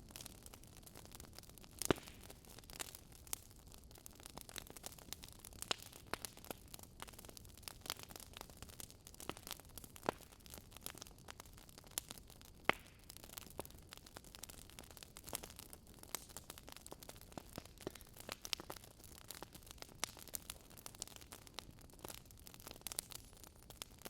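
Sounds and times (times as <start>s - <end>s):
wood fire crackling: 0.0s - 24.0s
sharp pops of fire: 1.8s - 3.4s, 12.0s - 13.2s, 15.2s - 21.4s.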